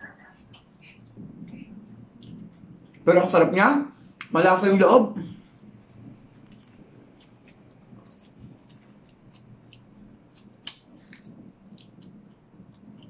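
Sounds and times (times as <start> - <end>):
chewing food: 0.4 - 3.0, 5.4 - 13.0.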